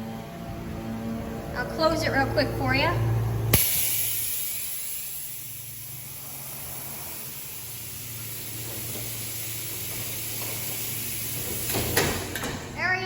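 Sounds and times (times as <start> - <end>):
low steady hum: 0.0 - 11.6
compressed air hissing: 3.5 - 12.4.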